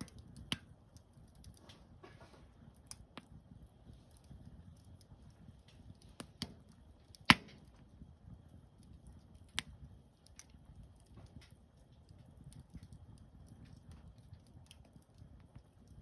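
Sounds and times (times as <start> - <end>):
wood fire crackling: 0.0 - 16.0
sharp fire pops: 5.7 - 8.0.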